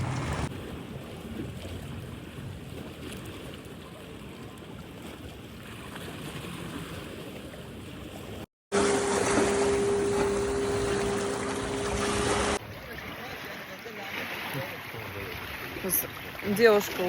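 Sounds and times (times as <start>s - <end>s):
wind and sea waves rushing: 0.0s - 17.0s
steady low hum: 8.7s - 12.6s.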